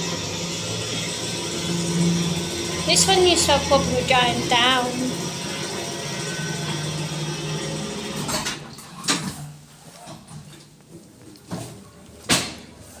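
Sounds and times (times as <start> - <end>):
lift drive humming: 0.0 - 8.6.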